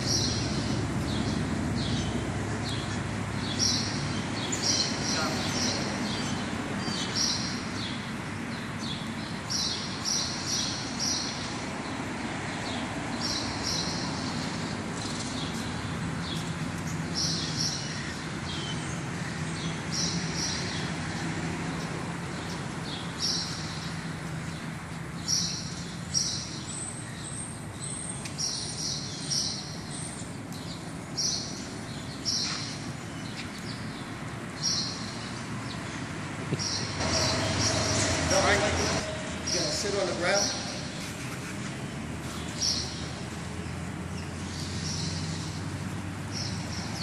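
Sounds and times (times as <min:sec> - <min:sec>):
bird chirping: 0:36.6 - 0:41.1.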